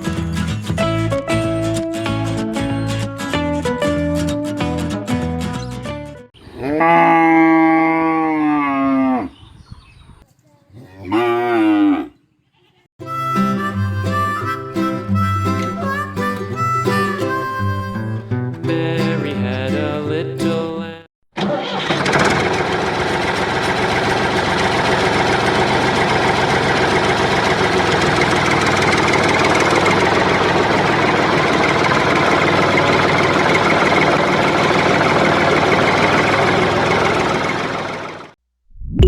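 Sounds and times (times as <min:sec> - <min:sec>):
background music: 0:00.0 - 0:06.3
small motor running: 0:21.9 - 0:38.4.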